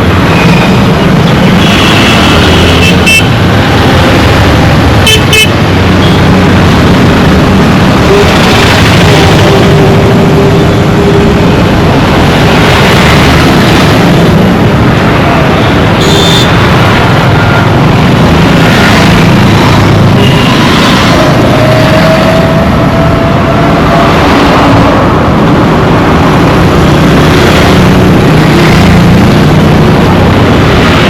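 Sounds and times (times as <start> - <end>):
traffic rumble: 0.0 - 31.0
car horn honks: 5.0 - 5.5, 16.0 - 16.5.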